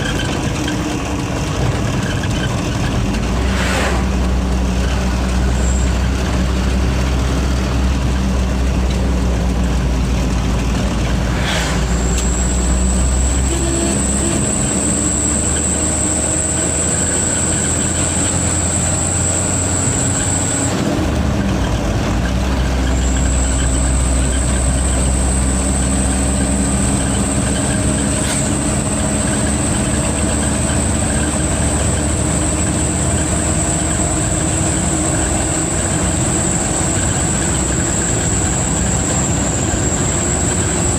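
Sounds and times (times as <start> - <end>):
diesel truck engine running: 0.0 - 40.9
turbocharger whistle: 11.2 - 20.9, 22.6 - 40.9.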